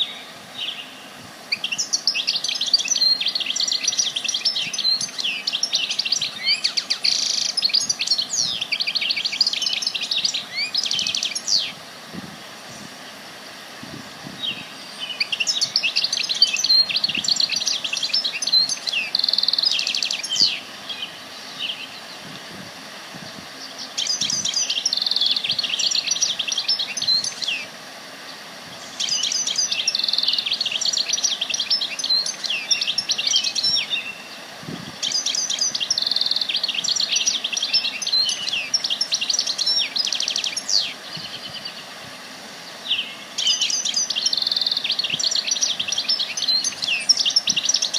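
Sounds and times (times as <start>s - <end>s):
songbird chirping and trilling: 0.0s - 11.8s, 14.4s - 22.4s, 23.2s - 42.0s, 42.6s - 47.9s.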